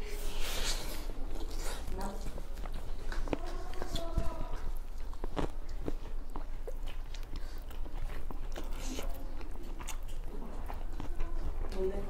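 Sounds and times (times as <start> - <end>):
people chewing and lip smacking: 0.0 - 12.0
steady low hum: 0.0 - 12.0.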